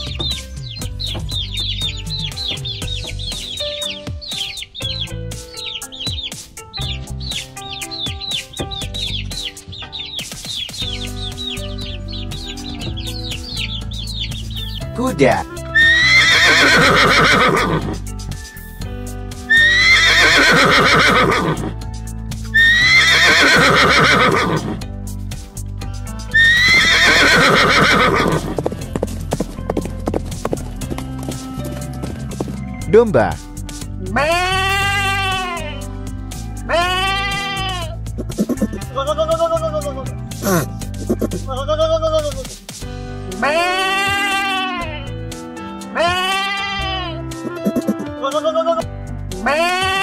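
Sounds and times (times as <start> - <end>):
baby chicks peeping: 0.0 - 18.0, 36.8 - 39.7
background music: 0.0 - 50.0
horse whinnying: 15.6 - 18.1, 19.5 - 21.8, 22.6 - 24.8, 26.3 - 28.8, 34.1 - 35.8, 36.7 - 39.8, 46.0 - 48.8
hooves clip-clopping: 25.4 - 35.6, 36.7 - 39.7.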